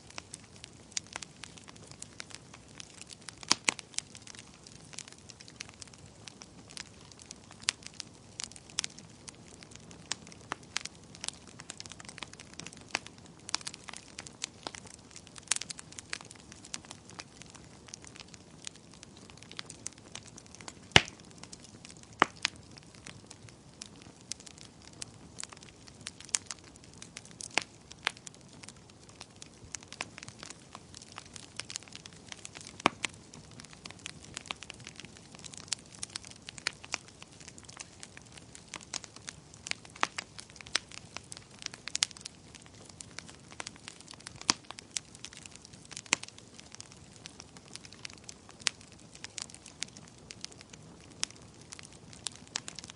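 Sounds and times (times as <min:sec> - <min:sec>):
wood fire crackling and popping: 0:00.0 - 0:52.9.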